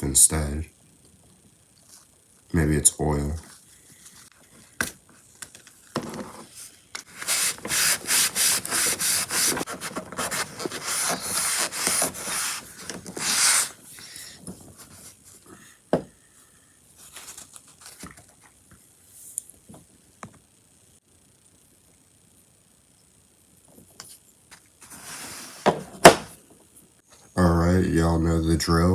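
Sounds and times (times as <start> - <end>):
hand rubbing plastic: 5.5 - 15.2.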